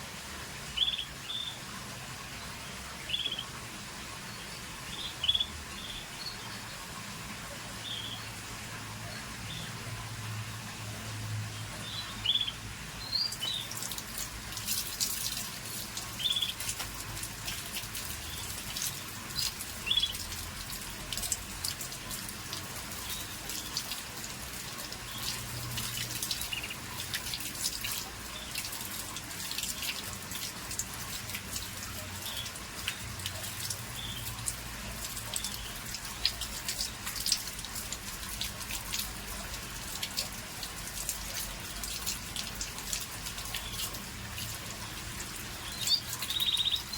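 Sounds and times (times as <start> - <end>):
canary chirp calls: 45.7 - 46.9.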